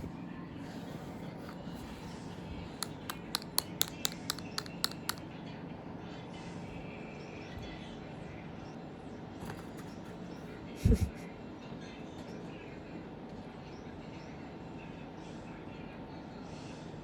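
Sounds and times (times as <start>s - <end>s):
plastic cat toy clicking: 2.8s - 5.2s.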